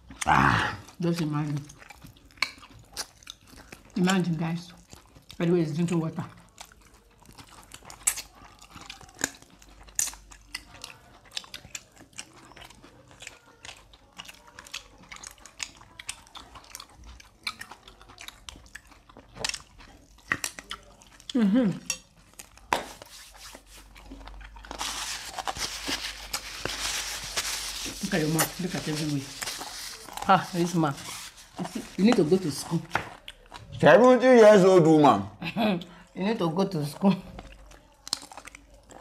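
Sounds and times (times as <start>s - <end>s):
wet chewing and lip smacks: 0.0s - 34.2s, 36.8s - 39.0s
rustling noise: 22.8s - 23.9s, 24.8s - 32.4s.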